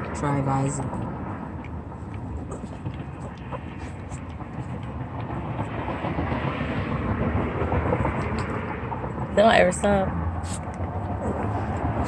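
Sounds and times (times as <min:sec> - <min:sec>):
train rolling on tracks: 0:02.7 - 0:11.1.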